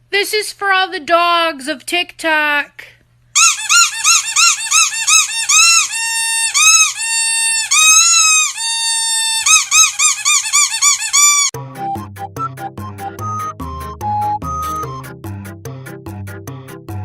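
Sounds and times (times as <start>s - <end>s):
squeaky toy squeaking: 3.4s - 11.6s.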